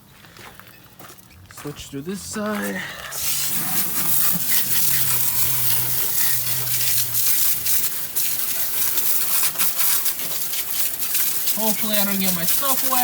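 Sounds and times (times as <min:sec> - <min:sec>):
water spraying hiss: 0:03.1 - 0:13.0.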